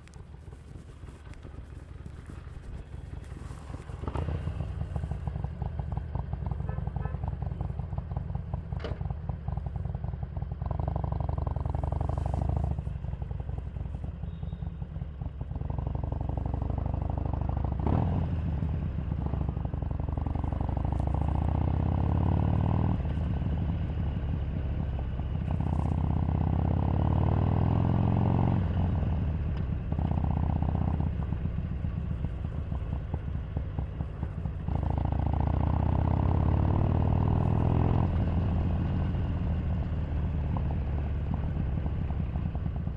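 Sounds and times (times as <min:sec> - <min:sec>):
motorcycle engine revving: 0:14.4 - 0:42.9.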